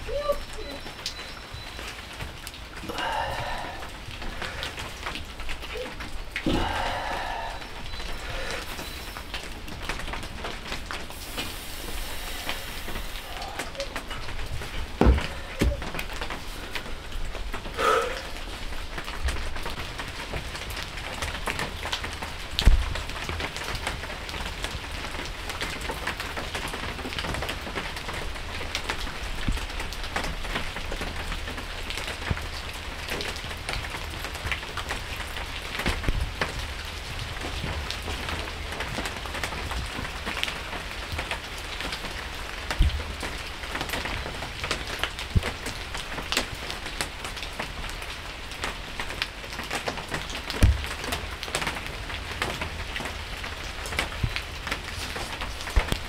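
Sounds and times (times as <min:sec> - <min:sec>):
rain on hard surfaces: 0:00.0 - 0:56.0
dull thumps: 0:15.0 - 0:16.0.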